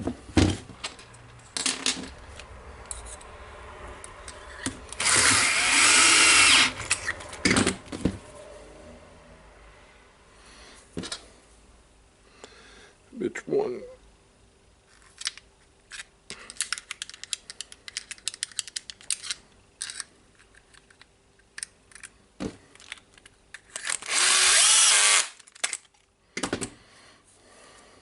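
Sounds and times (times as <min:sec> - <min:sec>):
power screwdriver driving screw: 0:04.9 - 0:07.2, 0:23.8 - 0:25.4.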